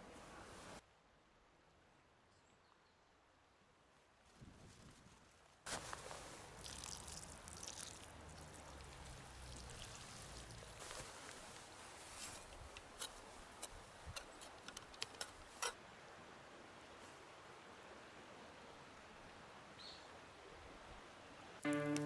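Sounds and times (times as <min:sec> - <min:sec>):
water pouring and trickling: 0:05.7 - 0:11.6.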